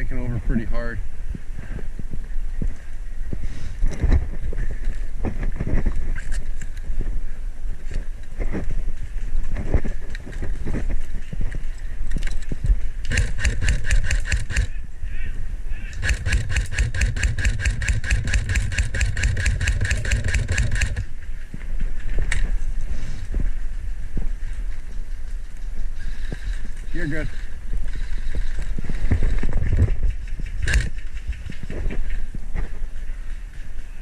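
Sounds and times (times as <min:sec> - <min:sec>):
wind rumble: 0:00.0 - 0:34.0
airsoft gun firing bursts: 0:13.1 - 0:14.8, 0:16.0 - 0:21.1, 0:30.6 - 0:30.9.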